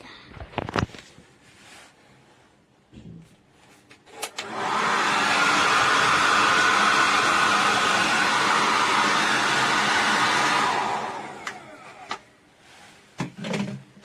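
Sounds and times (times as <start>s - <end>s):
hair dryer blowing air: 4.1s - 12.3s
hair dryer switch clicks: 4.2s - 4.8s, 11.2s - 12.2s.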